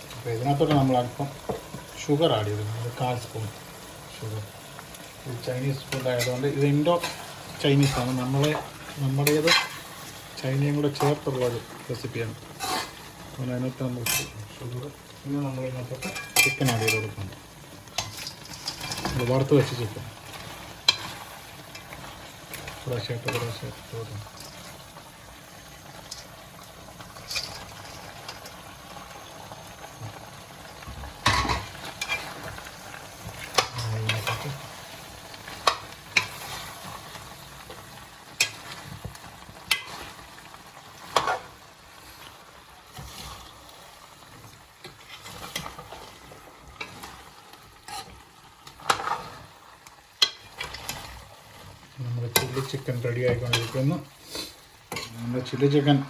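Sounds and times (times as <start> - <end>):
food sizzling in a pan: 0.0 - 56.0
spoon clacking against a pan: 16.0 - 17.2, 50.2 - 51.0, 52.3 - 53.8.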